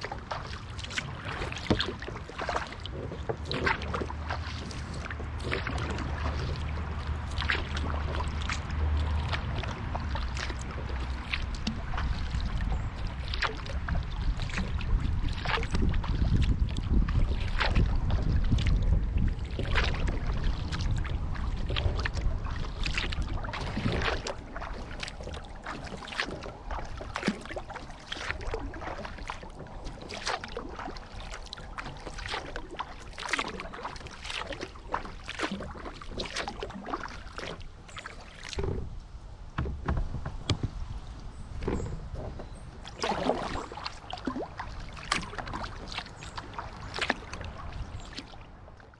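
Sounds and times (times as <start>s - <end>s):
paddle splashing in water: 0.0s - 48.9s.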